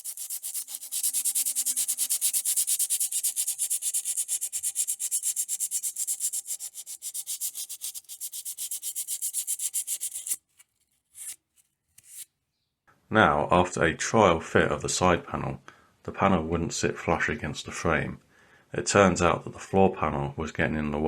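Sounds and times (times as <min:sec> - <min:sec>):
abrasive scrubbing bare metal: 0:00.0 - 0:10.4.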